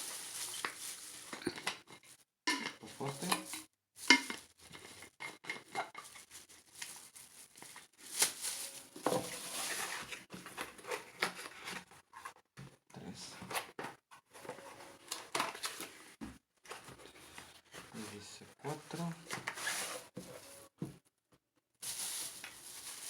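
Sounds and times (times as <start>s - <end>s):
plastic bag crinkling: 0.0s - 1.7s, 6.0s - 10.2s, 21.8s - 23.0s.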